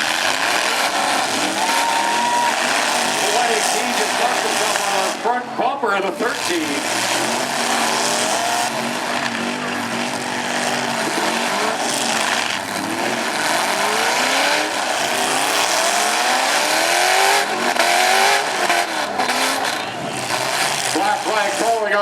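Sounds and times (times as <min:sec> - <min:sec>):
truck engines revving hard: 0:00.0 - 0:22.0.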